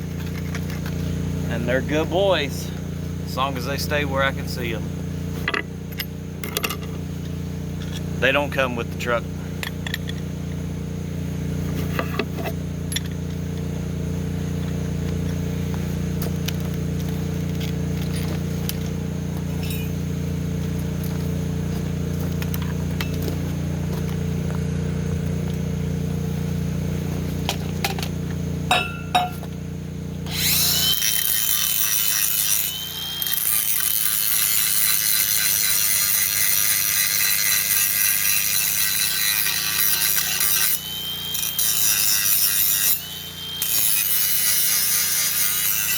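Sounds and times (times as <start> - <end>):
low engine hum: 0.0 - 30.9
angle grinder grinding steel: 11.5 - 24.5, 25.3 - 45.9
light metal clinks: 19.5 - 20.0.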